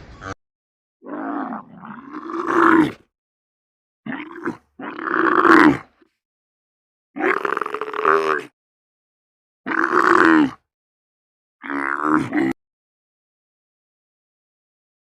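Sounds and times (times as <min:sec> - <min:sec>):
animal roaring: 0:01.0 - 0:03.1, 0:04.1 - 0:06.0, 0:07.2 - 0:08.5, 0:09.7 - 0:10.6, 0:11.6 - 0:12.6.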